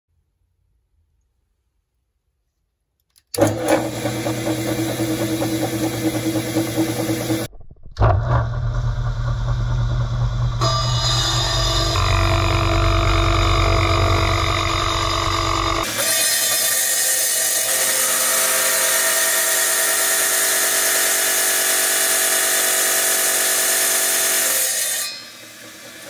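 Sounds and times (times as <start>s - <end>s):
motor running: 3.4s - 16.0s.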